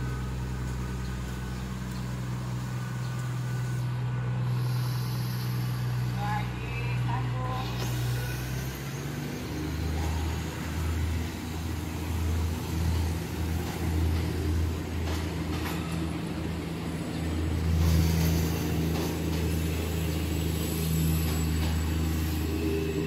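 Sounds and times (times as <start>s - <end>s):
diesel train engine drone: 0.0s - 23.0s.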